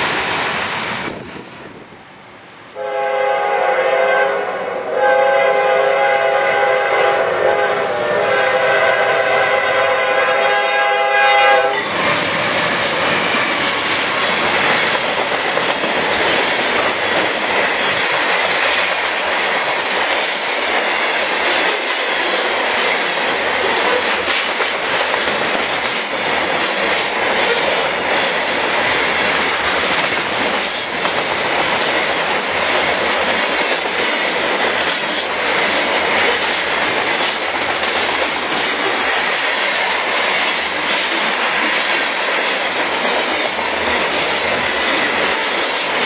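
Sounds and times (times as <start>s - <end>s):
locomotive air horn blasts: 2.8s - 11.9s
train wheels clattering: 9.2s - 46.0s.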